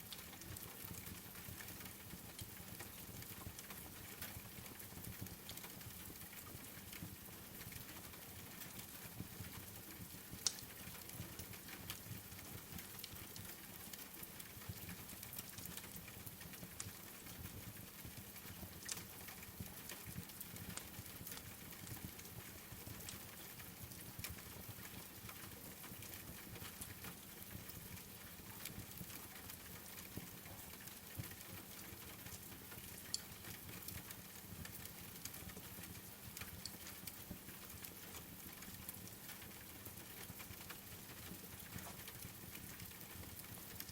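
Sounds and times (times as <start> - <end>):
wood fire crackling and popping: 10.4 - 43.9.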